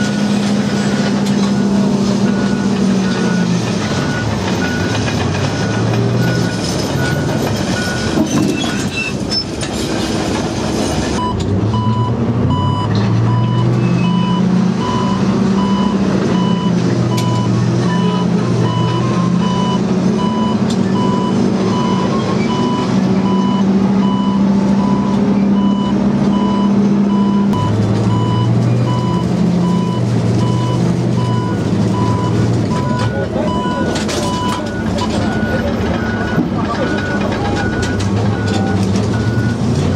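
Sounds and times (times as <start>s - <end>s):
vehicle engine running: 0.0s - 8.2s
electronic warning beep: 11.2s - 39.6s.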